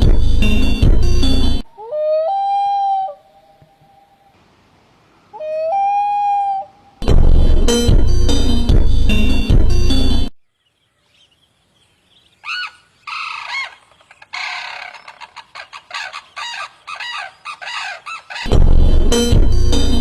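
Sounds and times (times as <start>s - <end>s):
music: 0.0s - 1.6s, 7.0s - 10.3s, 18.5s - 20.0s
bird calling: 1.7s - 4.4s, 5.2s - 7.0s, 10.7s - 18.6s.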